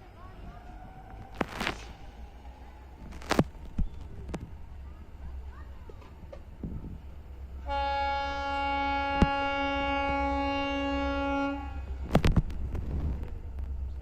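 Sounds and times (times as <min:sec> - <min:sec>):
train horn blast: 0:07.6 - 0:12.0.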